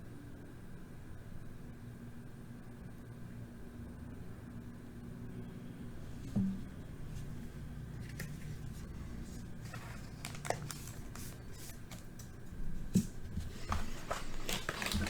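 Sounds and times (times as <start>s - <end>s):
cards and packaging rustling: 7.2s - 15.0s.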